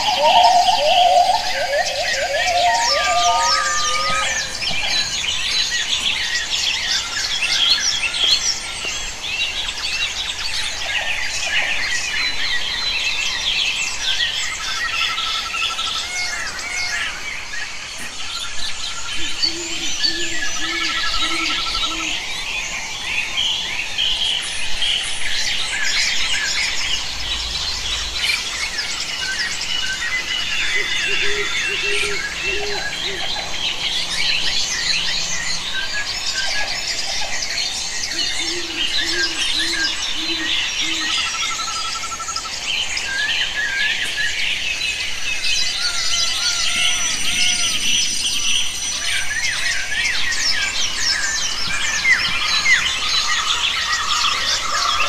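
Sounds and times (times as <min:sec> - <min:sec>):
low hooting notes: 0:00.0 - 0:05.3
birds chirping and whistling: 0:00.0 - 0:55.0.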